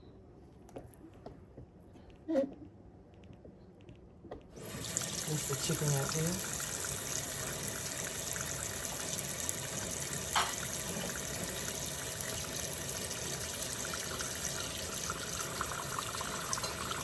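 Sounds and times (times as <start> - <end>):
kitchen tap running: 4.6 - 17.0.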